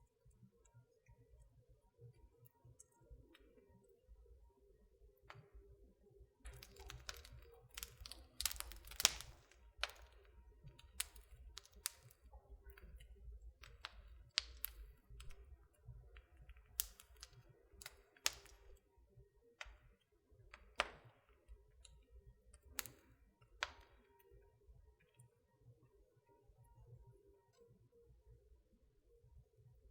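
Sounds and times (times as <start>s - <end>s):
low rumble of burning: 6.4s - 20.8s
wood fire crackling and popping: 6.5s - 18.9s, 19.6s - 24.1s.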